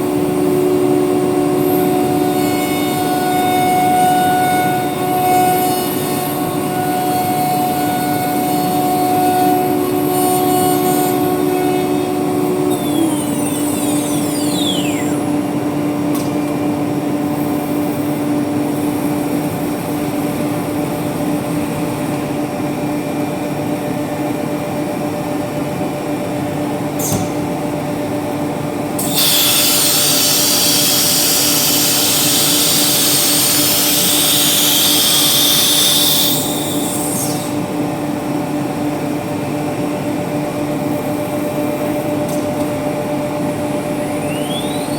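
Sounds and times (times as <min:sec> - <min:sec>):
router spindle whining: 0:00.0 - 0:18.8, 0:29.0 - 0:37.9, 0:43.0 - 0:44.9.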